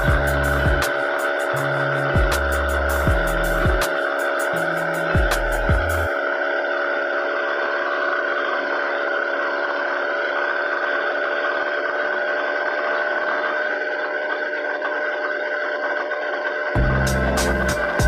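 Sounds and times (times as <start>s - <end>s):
motorized bicycle engine running: 0.0s - 18.0s.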